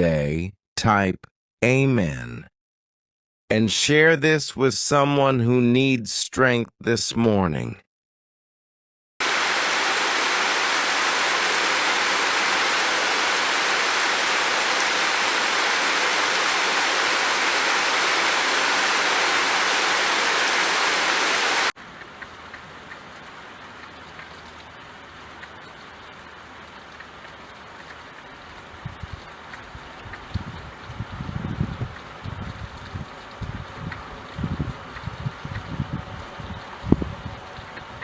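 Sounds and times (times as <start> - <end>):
heavy rain: 9.2 - 31.1
faint ticks: 26.8 - 30.4.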